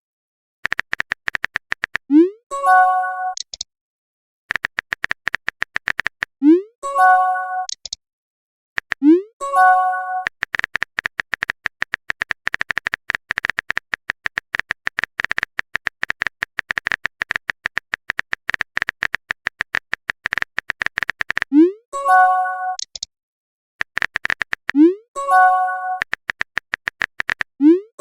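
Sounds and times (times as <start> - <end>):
rapid keyboard tap clicks: 0.6 - 2.1, 4.5 - 6.4, 8.8 - 9.0, 10.2 - 21.5, 23.8 - 24.8, 26.0 - 27.6.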